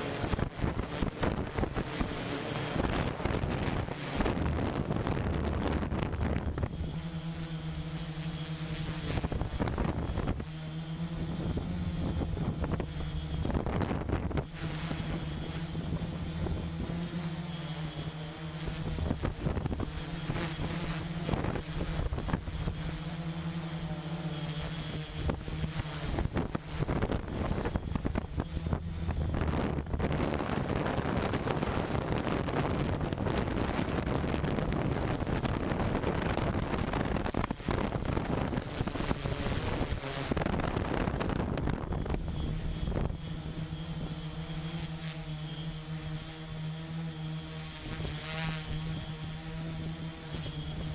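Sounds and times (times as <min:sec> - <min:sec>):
machinery engine humming: 0:00.0 - 0:38.6
wind buffeting microphone: 0:00.0 - 0:44.8
faint high whine: 0:00.0 - 0:50.9.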